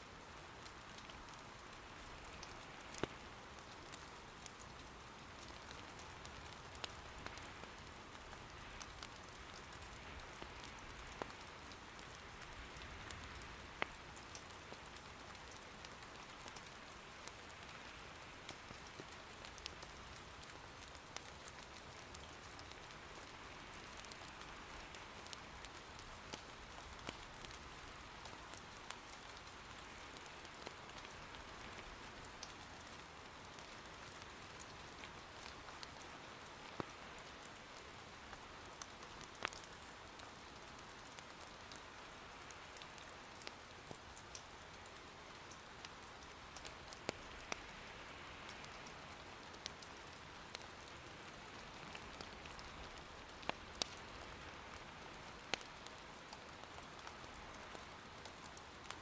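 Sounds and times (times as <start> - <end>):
soft rain falling: 0.0 - 59.0
firewood crackling: 0.5 - 59.0.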